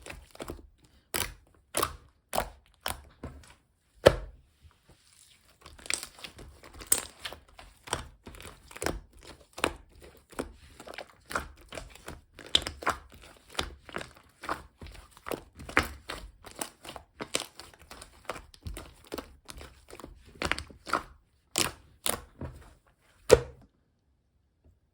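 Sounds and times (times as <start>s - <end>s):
slime squishing and popping: 0.0s - 3.2s, 5.7s - 22.4s.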